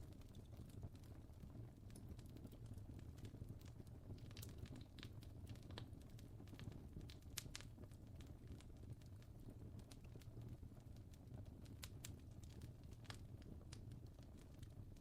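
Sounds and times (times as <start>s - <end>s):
fire crackling and popping: 0.0s - 15.0s
low rumble of fire: 0.0s - 15.0s.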